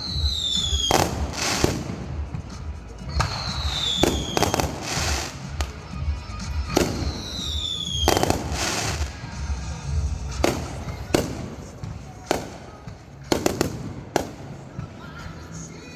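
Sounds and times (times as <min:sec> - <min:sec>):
fireworks whistling falling in pitch: 0:00.0 - 0:09.4
firework bangs: 0:00.0 - 0:15.5.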